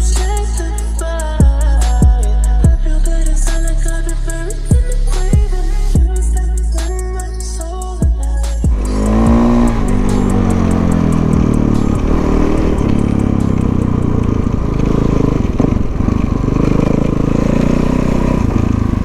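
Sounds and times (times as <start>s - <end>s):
dirt bike engine revving: 8.5s - 19.0s.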